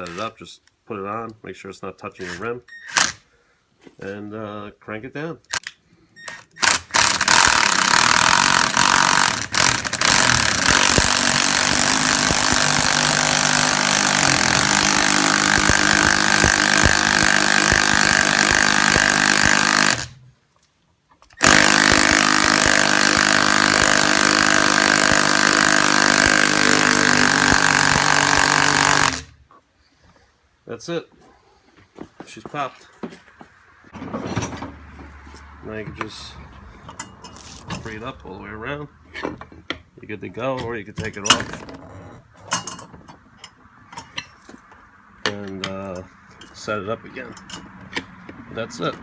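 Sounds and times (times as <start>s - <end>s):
impact driver running: 6.6s - 20.2s, 21.4s - 29.4s.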